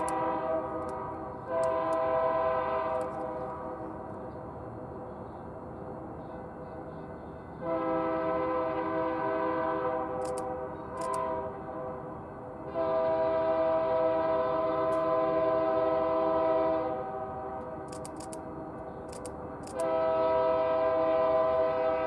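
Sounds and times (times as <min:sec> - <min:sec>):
locomotive air horn: 0:00.0 - 0:04.0, 0:06.7 - 0:17.8, 0:19.7 - 0:22.0.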